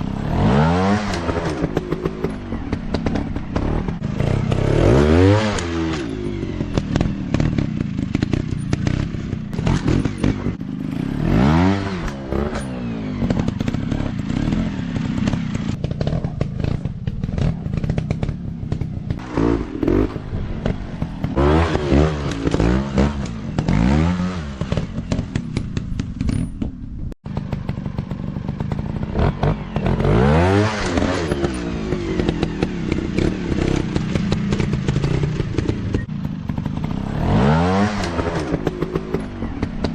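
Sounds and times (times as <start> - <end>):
dirt-bike engines revving: 0.0 - 26.2, 27.3 - 39.9
clattering over rough ground: 0.0 - 39.9.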